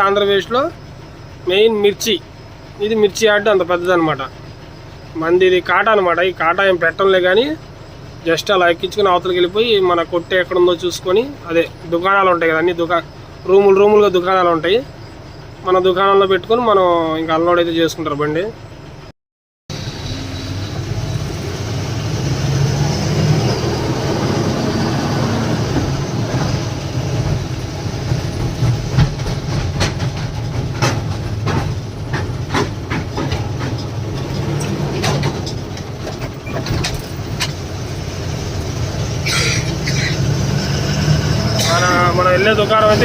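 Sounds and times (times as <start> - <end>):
lorry engine running: 0.0 - 19.1, 19.7 - 43.0
truck rattling and knocking: 20.6 - 43.0.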